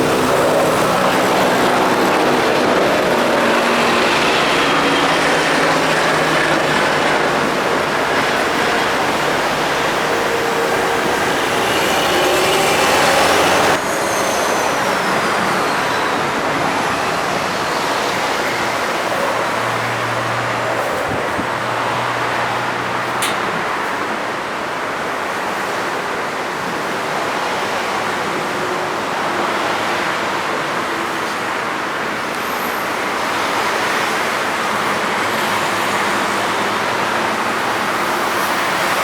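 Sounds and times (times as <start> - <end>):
heavy diesel machinery running: 0.0 - 24.0.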